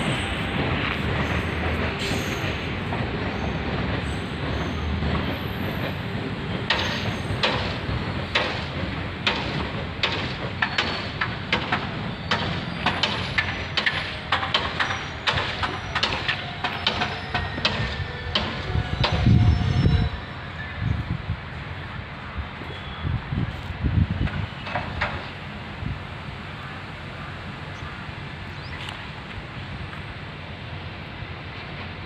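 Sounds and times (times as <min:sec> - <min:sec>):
wheel clacks over rail joints: 0:00.0 - 0:19.5, 0:24.2 - 0:25.4
train rumble: 0:00.0 - 0:32.0.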